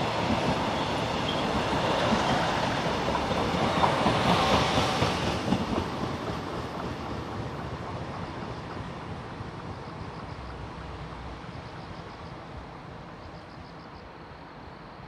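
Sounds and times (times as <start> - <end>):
train wheel clacks: 0.0 - 7.7
train rumble: 0.0 - 15.0.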